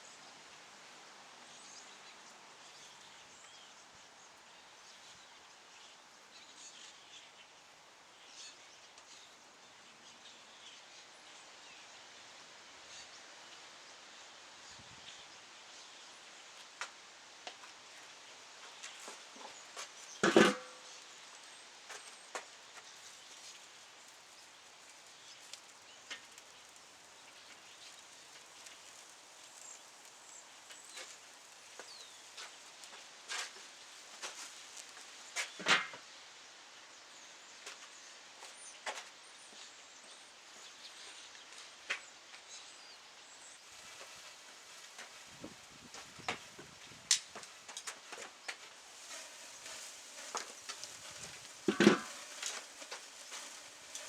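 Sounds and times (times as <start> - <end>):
campfire crackling: 19.6 - 35.4, 43.6 - 54.0
fire hiss: 22.2 - 35.6, 43.6 - 54.0.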